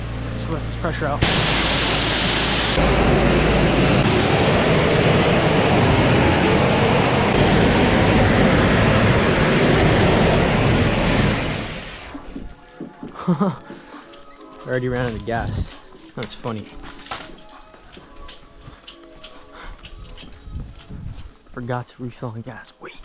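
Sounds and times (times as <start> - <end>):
pressure washer engine running: 0.8 - 12.2.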